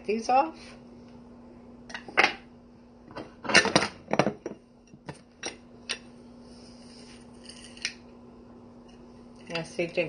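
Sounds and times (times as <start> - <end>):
kitchen utensils knocking and clinking: 3.1 - 5.6.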